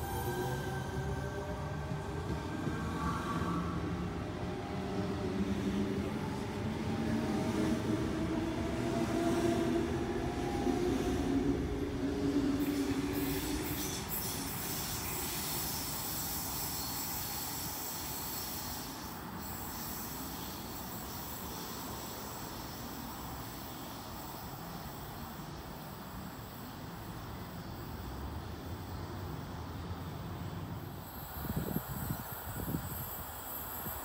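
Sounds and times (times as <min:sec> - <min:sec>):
electric train pulling away: 0:00.0 - 0:34.0
steady hiss: 0:12.6 - 0:34.0.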